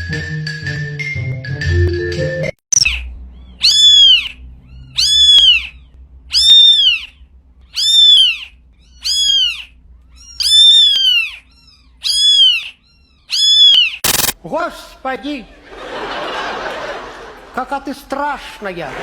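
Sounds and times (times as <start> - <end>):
cat meowing: 3.4 - 14.0.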